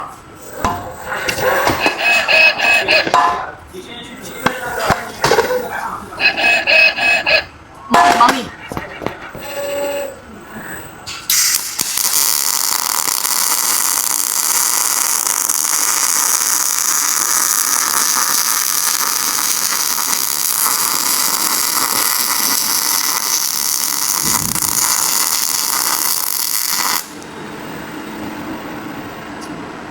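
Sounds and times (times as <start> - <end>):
arc welding crackling hiss: 11.2 - 27.8.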